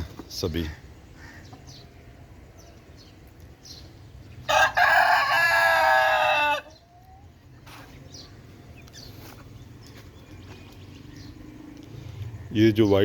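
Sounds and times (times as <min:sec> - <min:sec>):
rooster crowing: 0:04.5 - 0:06.8.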